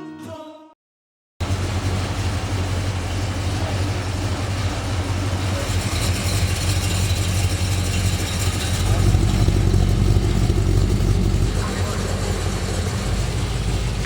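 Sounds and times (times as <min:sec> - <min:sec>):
background music: 0:00.0 - 0:00.7
car engine idling: 0:01.4 - 0:14.0.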